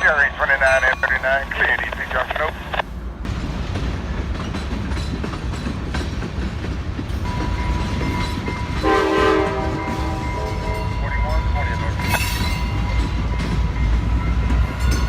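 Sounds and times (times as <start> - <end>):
train rumbling with wheel clatter: 0.0 - 15.0
train horn chord: 8.8 - 11.4.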